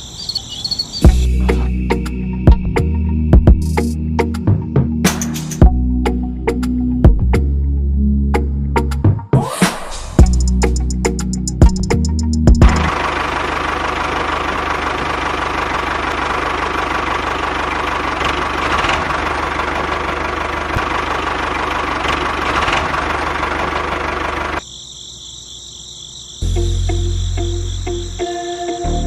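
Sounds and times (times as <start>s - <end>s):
small engine running: 11.6s - 24.6s.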